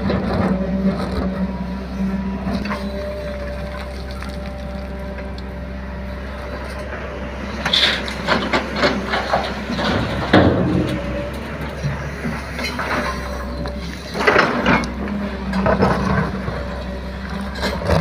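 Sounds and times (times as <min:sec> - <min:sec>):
diesel engine running: 0:00.0 - 0:18.0
machine knocks and clatter: 0:08.2 - 0:12.0.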